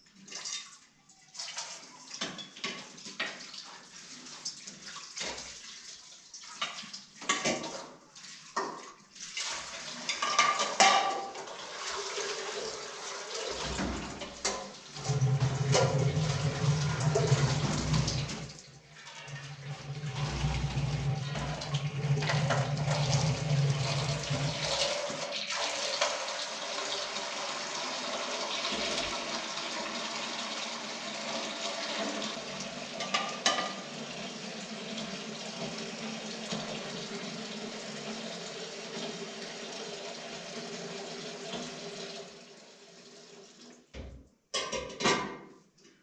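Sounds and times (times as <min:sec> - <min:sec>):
running water splashing: 0:11.5 - 0:43.5.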